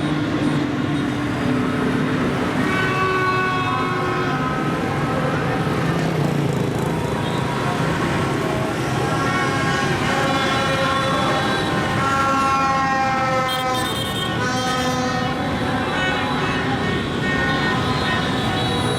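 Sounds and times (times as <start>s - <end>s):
horns honking: 0.0s - 18.9s
motorbike engines running: 4.5s - 12.4s.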